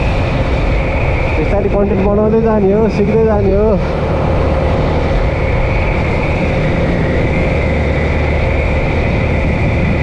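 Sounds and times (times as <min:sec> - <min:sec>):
motorcycle engine humming: 0:00.0 - 0:10.0
road noise: 0:00.0 - 0:10.0
wind noise: 0:00.0 - 0:10.0.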